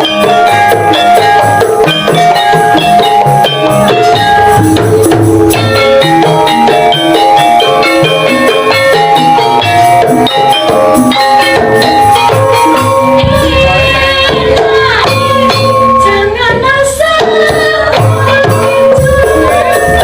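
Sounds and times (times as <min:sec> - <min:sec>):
metallophones ringing: 0:00.0 - 0:16.7, 0:17.4 - 0:20.0
hand drum strokes: 0:00.0 - 0:20.0
woman singing: 0:13.1 - 0:20.0.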